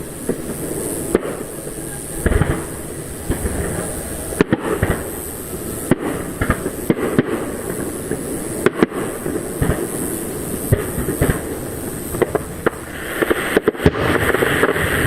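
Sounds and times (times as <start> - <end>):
fireworks bursting with sharp bangs: 0.0 - 15.0
steady busy background noise: 0.0 - 15.0.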